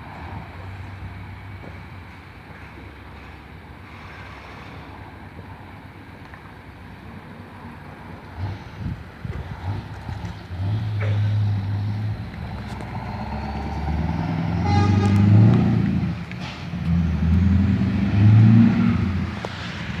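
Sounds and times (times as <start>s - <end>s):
diesel truck engine running: 5.1s - 20.0s.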